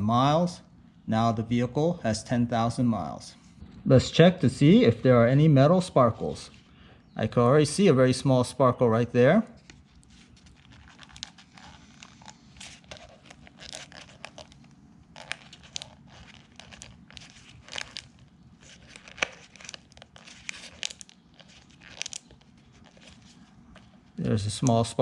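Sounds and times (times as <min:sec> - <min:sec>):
oil filter crinkling and tearing: 0:09.6 - 0:24.9.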